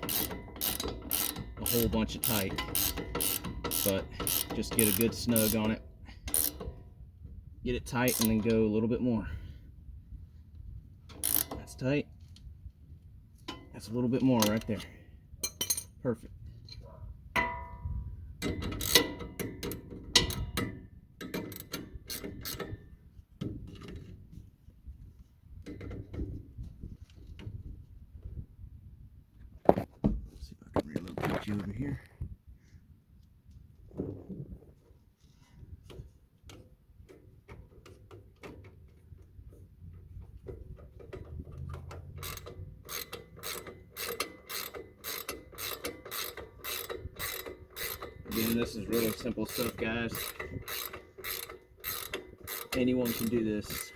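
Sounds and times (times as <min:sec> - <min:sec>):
ratchet wrench clicking: 0:00.0 - 0:06.7, 0:08.0 - 0:08.6, 0:11.1 - 0:11.6, 0:18.4 - 0:22.8, 0:42.2 - 0:53.9.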